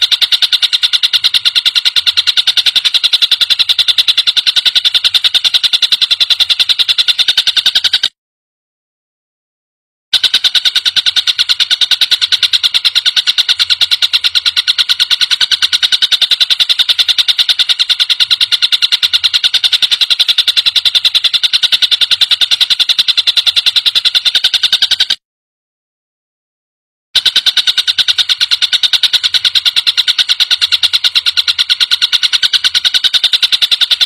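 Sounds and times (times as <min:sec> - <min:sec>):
kingfisher rattling call: 0:10.2 - 0:25.2.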